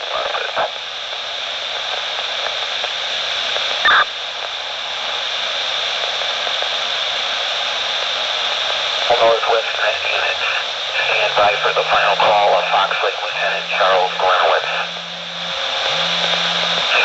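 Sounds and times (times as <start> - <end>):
radio crackle: 0.0 - 0.9, 1.7 - 4.1, 9.0 - 17.0
radio static hiss: 0.0 - 17.0.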